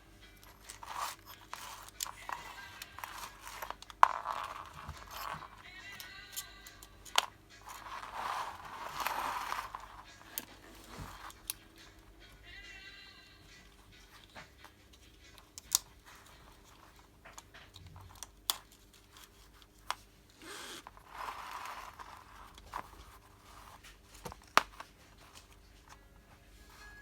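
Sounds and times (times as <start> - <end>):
scraping rustle: 7.7 - 11.4
sharp clicks and knocks of parts: 14.2 - 15.9.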